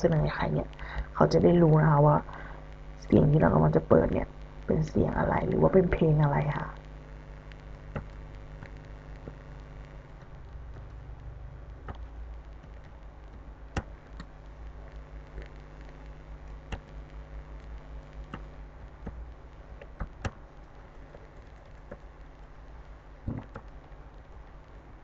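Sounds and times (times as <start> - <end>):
steady low hum: 0.0 - 25.0
computer clicks: 12.6 - 14.3, 16.7 - 16.9, 19.8 - 20.4, 23.2 - 23.9.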